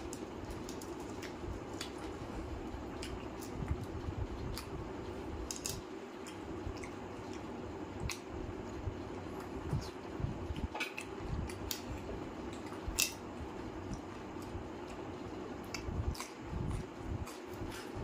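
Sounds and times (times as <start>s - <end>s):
steady low hum: 0.0s - 18.0s
person chewing with wet smacks: 0.1s - 2.4s, 3.0s - 4.8s, 5.5s - 8.3s, 13.8s - 18.0s.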